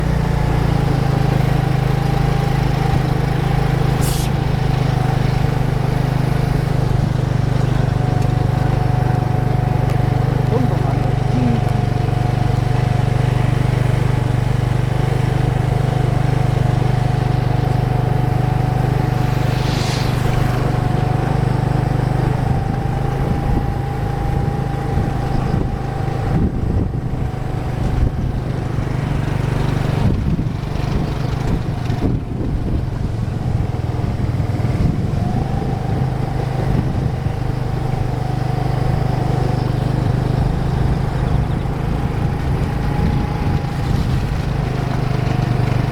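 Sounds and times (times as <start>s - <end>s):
low engine-like hum: 0.0s - 45.9s
brief hiss: 4.0s - 4.4s, 19.1s - 20.9s
faint whine: 17.9s - 22.8s.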